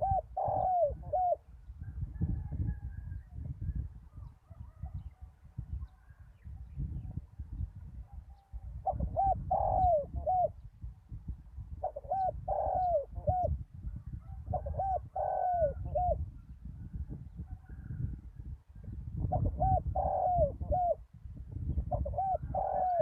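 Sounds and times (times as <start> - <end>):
dove cooing: 0.0 - 1.5, 8.2 - 10.6, 11.8 - 16.2, 19.2 - 21.0, 21.8 - 23.0.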